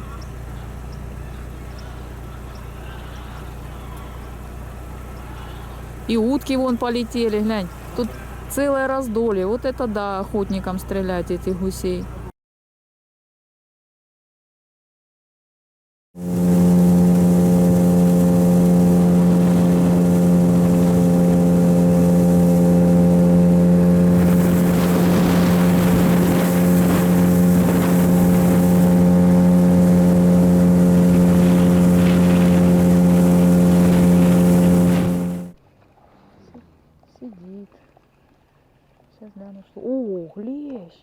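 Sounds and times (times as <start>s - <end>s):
outboard motor running: 0.0s - 12.3s, 16.2s - 35.6s
rushing water or wind: 16.2s - 35.6s.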